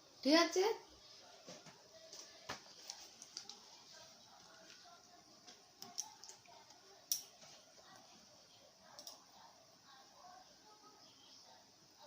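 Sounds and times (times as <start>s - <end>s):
faint clicks and taps: 1.4s - 3.8s, 4.4s - 8.1s.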